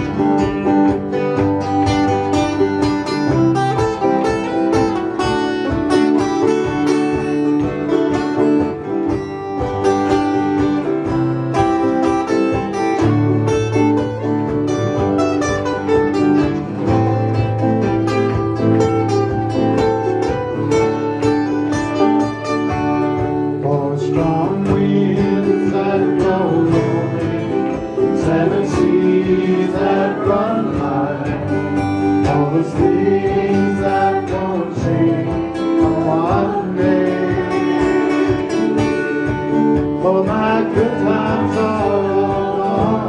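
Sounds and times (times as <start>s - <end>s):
acoustic guitar folk instrumental: 0.0s - 43.0s.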